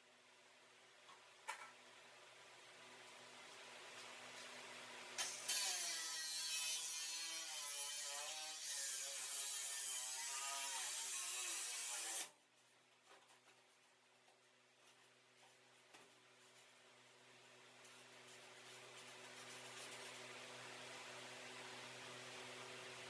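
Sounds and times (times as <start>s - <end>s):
drill boring into sheet metal: 5.2s - 12.3s.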